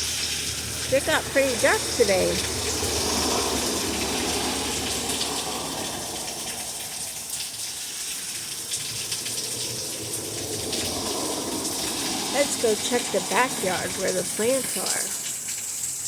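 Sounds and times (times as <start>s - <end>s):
rain pouring: 0.0s - 16.0s
raindrops ticking on surfaces: 0.0s - 16.0s.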